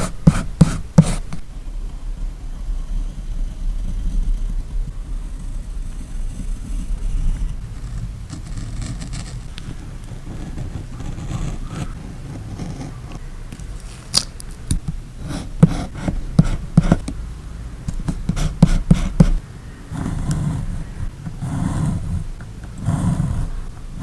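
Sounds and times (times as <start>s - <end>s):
rustling and scraping: 3.9s - 17.2s
paper and tape handling: 13.5s - 17.0s.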